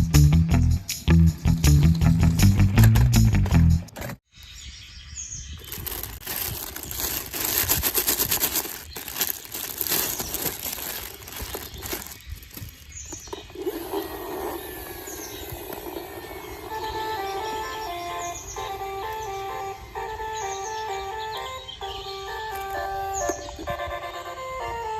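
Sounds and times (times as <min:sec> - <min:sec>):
crackling noise: 0:05.6 - 0:20.1.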